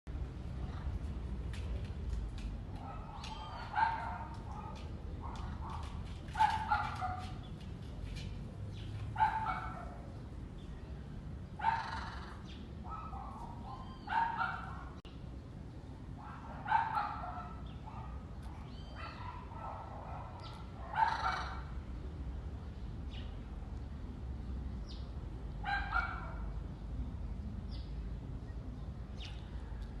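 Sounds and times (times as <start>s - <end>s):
parrot barking calls: 11.6s - 15.0s, 16.2s - 21.7s.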